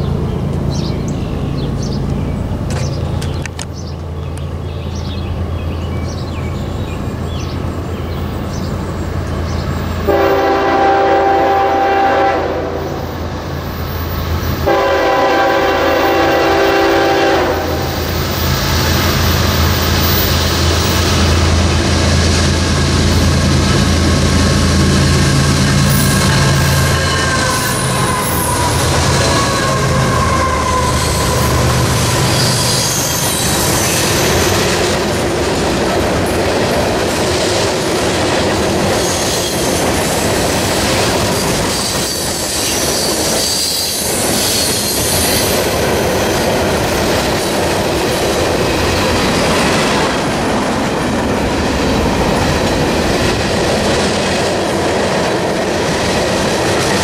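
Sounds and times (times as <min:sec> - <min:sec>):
diesel locomotive humming: 0:00.0 - 0:57.0
freight cars rumbling on rails: 0:00.0 - 0:57.0
clickety-clack over rail joints: 0:01.6 - 0:04.5, 0:17.9 - 0:57.0
high-pitched wheel squeal: 0:25.9 - 0:34.4, 0:41.7 - 0:45.6.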